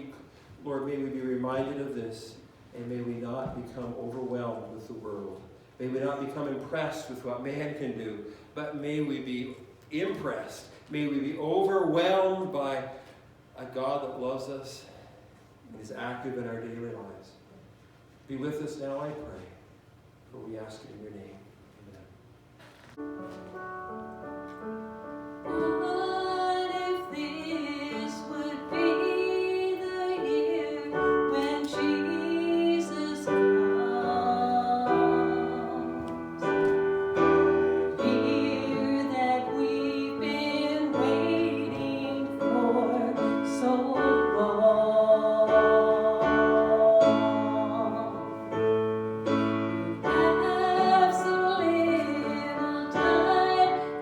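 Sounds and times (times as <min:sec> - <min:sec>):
piano music: 0:23.0 - 0:54.0
person singing: 0:25.5 - 0:48.6, 0:49.3 - 0:54.0.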